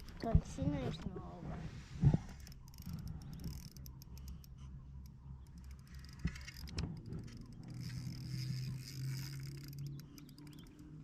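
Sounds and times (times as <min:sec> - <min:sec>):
low steady hum: 0:00.0 - 0:11.0
fishing reel clicking: 0:02.4 - 0:11.0.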